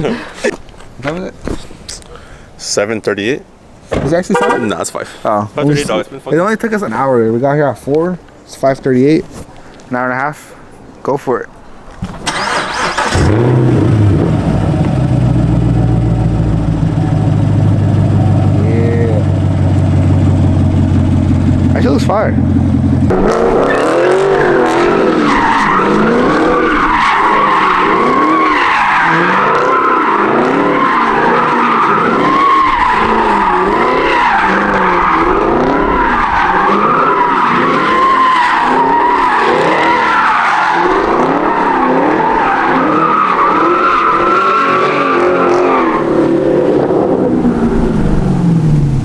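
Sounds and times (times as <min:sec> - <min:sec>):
tires squealing: 0:03.9 - 0:05.0, 0:12.0 - 0:49.0
car engine revving: 0:04.3 - 0:04.8, 0:12.0 - 0:49.0.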